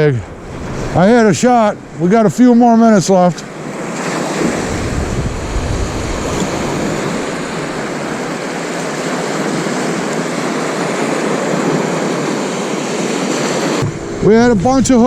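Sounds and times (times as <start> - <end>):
waves washing onto shore: 0.0 - 14.1.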